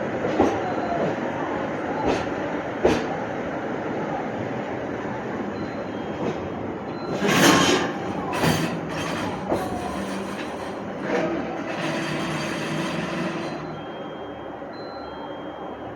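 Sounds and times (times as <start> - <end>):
electric train rumbling: 0.0 - 15.9
train wheels knocking on rail joints: 2.0 - 3.2, 6.2 - 14.0.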